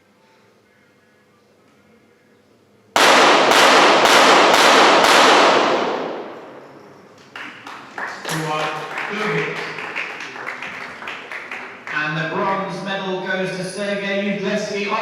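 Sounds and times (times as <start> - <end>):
pistol shots echoing: 3.0 - 7.0.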